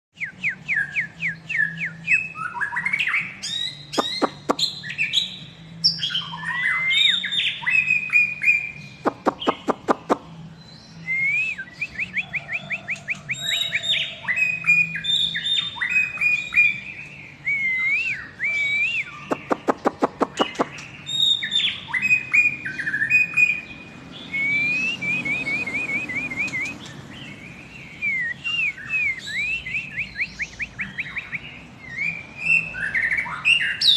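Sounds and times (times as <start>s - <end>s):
bird singing whistled phrases: 0.2s - 9.9s, 10.9s - 26.9s, 27.8s - 33.9s.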